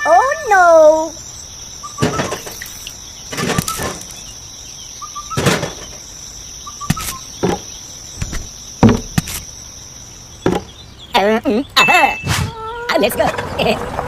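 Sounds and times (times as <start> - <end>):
high cricket-like chirring: 0.0 - 13.2
light knocks and taps: 8.2 - 9.4.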